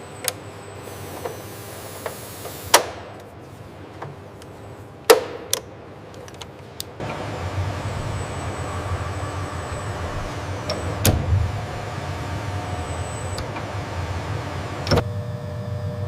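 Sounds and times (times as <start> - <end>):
low machine hum: 5.8 - 16.0
faint high whine: 7.0 - 16.0.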